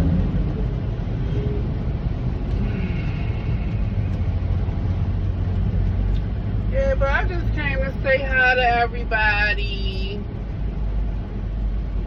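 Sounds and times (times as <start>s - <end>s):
road noise: 0.0s - 12.0s
truck engine low rumble: 0.0s - 12.0s.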